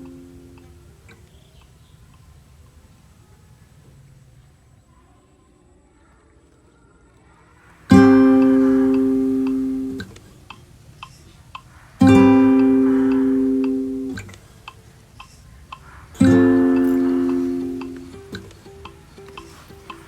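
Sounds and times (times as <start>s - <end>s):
guitar chords strummed: 0.0s - 0.9s, 7.9s - 10.3s, 12.0s - 14.4s, 16.2s - 20.0s
faint taps: 7.9s - 20.0s.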